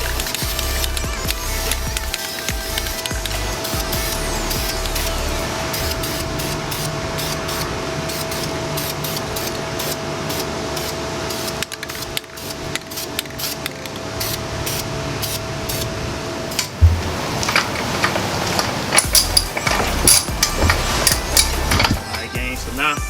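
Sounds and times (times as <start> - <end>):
aerosol can spraying: 0.0 - 15.9
steady hum: 0.0 - 23.0.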